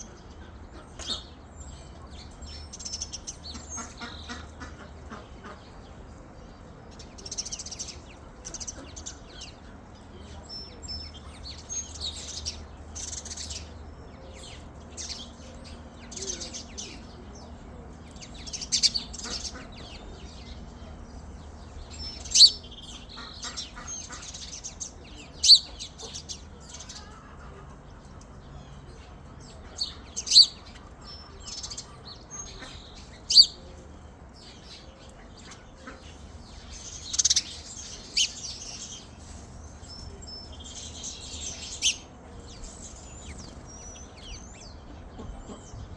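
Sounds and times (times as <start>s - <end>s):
birds chirping: 0.0s - 45.9s
loud sharp chirps close by: 21.6s - 27.1s, 29.8s - 30.8s, 31.5s - 33.8s, 36.2s - 44.5s.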